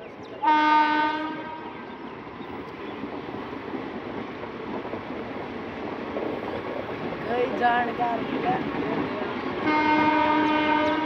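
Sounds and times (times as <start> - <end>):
train coaches rumbling past: 0.0 - 11.0
train horn blast: 0.4 - 1.9, 9.6 - 11.0.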